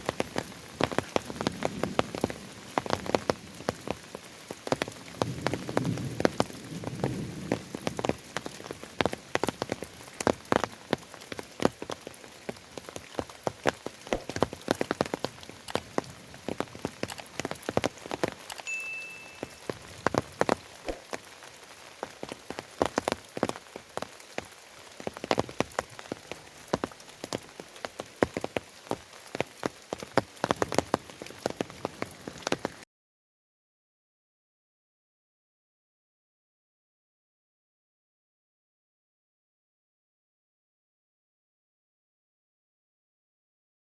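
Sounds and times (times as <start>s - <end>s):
rain drops tapping: 0.0s - 32.8s
rain hiss: 0.0s - 32.8s
high chirp: 18.6s - 19.9s.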